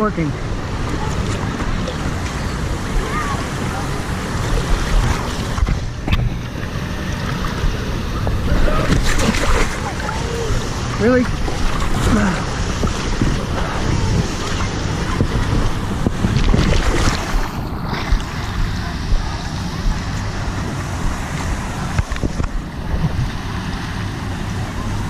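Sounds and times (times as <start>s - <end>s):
water sloshing and splashing: 0.0s - 25.0s
wind on microphone: 0.0s - 25.0s.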